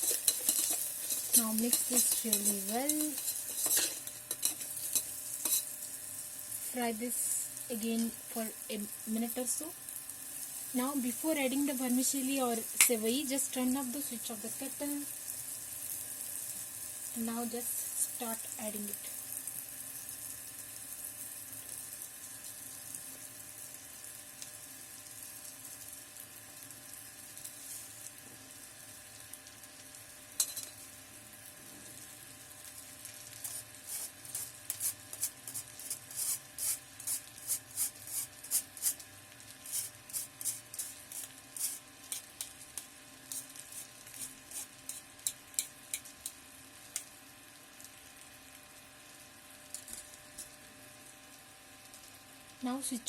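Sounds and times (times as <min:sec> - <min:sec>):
light clicks of stirring vermicelli: 0:00.0 - 0:05.7, 0:40.8 - 0:44.3, 0:44.9 - 0:47.1
onions sizzling: 0:00.0 - 0:53.0.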